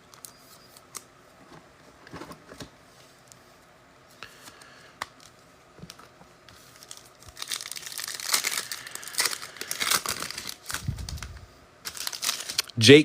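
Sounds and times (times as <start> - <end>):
wrapper crinkling: 5.2 - 12.8
card pack wrapper tearing: 6.7 - 12.8.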